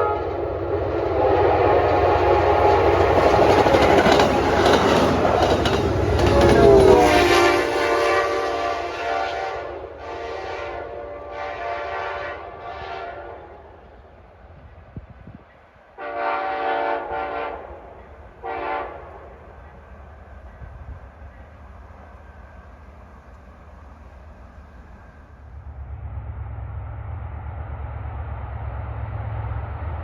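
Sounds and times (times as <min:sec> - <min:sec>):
train air horn blasts: 0:00.0 - 0:00.5, 0:06.0 - 0:13.8, 0:16.0 - 0:19.4
passing train rumble: 0:00.0 - 0:30.0.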